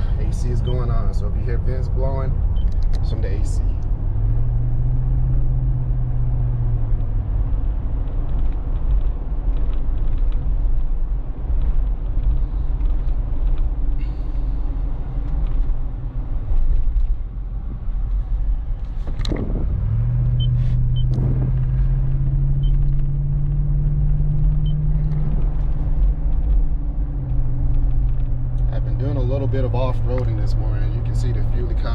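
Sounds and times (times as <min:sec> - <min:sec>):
engine and road rumble: 0:00.0 - 0:31.9
steady drone: 0:19.2 - 0:25.2.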